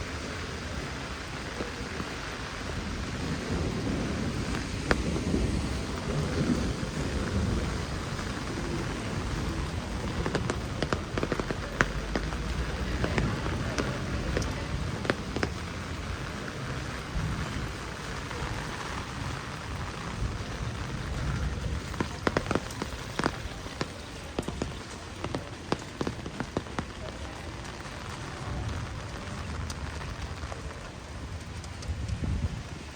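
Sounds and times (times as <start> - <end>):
heavy rain falling: 0.0 - 32.9
drops ticking close by: 4.4 - 17.9, 19.9 - 28.0.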